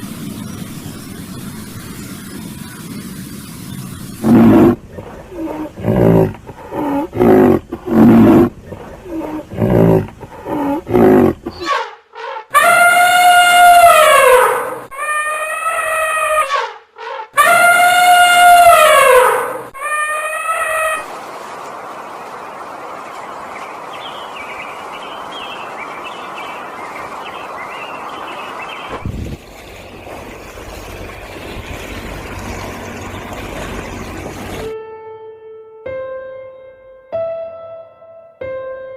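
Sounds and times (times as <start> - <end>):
birds chirping: 0.0 - 14.7, 15.5 - 34.8
large animal deep calls: 4.2 - 11.7
steady background hiss: 21.1 - 30.8.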